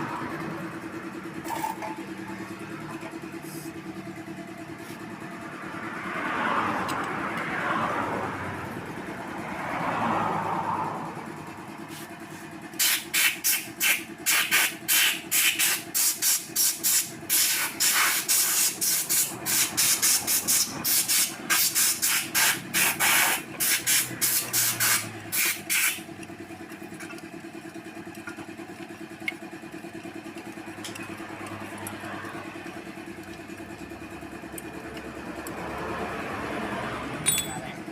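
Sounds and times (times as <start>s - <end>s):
rapid short hissing bursts: 12.8s - 26.1s.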